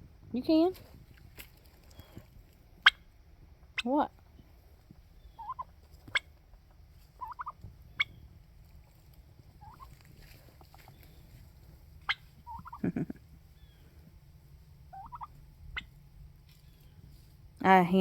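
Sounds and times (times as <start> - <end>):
turkeys calling: 1.9 - 3.9, 5.0 - 17.1.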